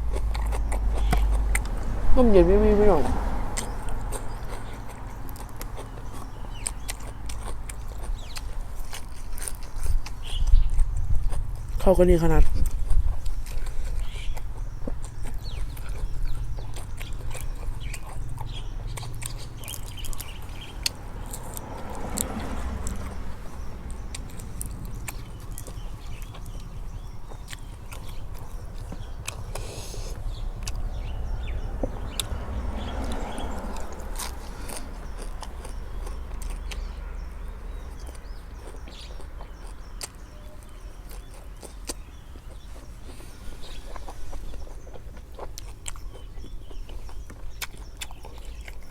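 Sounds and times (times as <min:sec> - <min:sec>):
person chewing food: 0:00.0 - 0:02.1, 0:03.2 - 0:11.8, 0:12.4 - 0:48.9
steady low rumble: 0:00.0 - 0:06.7, 0:22.1 - 0:38.4
birds chirping: 0:00.0 - 0:48.9.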